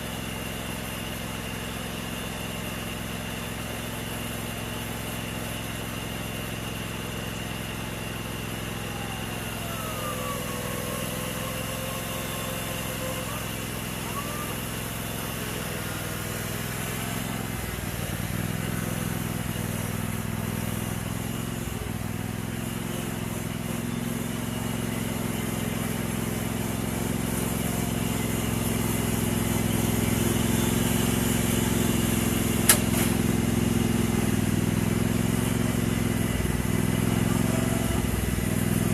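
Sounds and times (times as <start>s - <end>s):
lawn mower engine running: 0.0s - 38.9s
sharp click: 32.7s - 33.1s.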